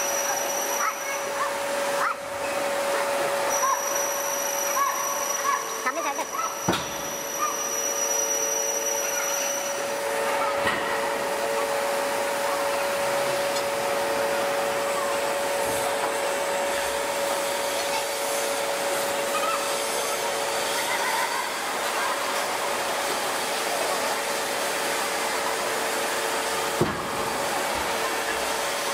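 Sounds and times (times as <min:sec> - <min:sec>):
forging press hissing: 0:06.3 - 0:09.8.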